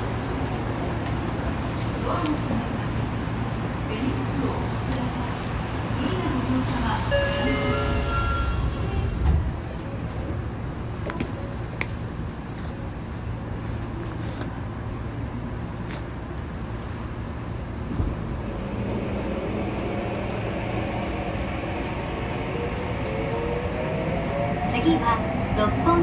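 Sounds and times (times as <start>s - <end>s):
train low hum: 0.0s - 26.0s
train motors whining: 17.9s - 26.0s.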